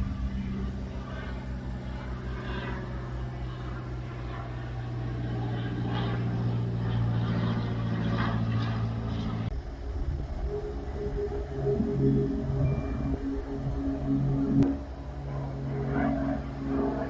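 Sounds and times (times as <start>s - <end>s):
aircraft engine droning: 0.0s - 17.0s
music: 10.3s - 15.0s.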